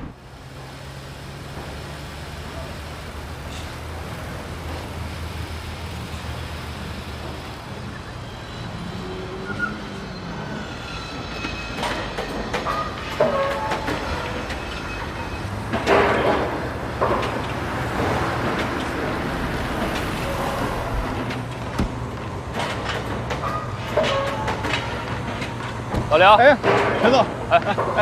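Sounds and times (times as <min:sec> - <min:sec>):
car driving hum: 0:00.0 - 0:09.6, 0:15.1 - 0:26.6
construction site noise: 0:00.0 - 0:28.0.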